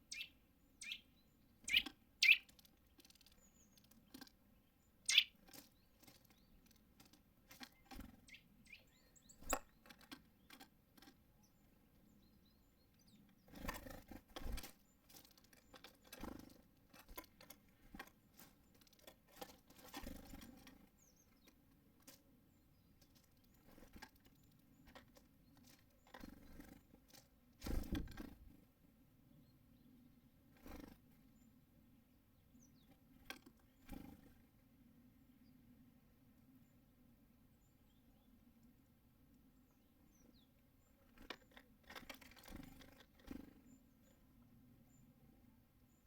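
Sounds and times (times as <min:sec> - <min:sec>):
birds rustling: 0:00.0 - 0:11.2, 0:13.0 - 0:28.7, 0:40.9 - 0:44.4
birds tapping at a feeder: 0:00.0 - 0:28.6, 0:40.1 - 0:44.4.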